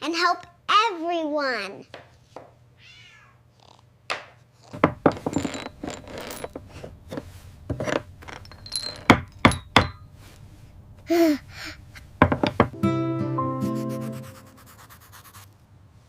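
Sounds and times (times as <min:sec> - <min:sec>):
tools knocking and clinking: 0:04.8 - 0:10.1, 0:12.2 - 0:12.8.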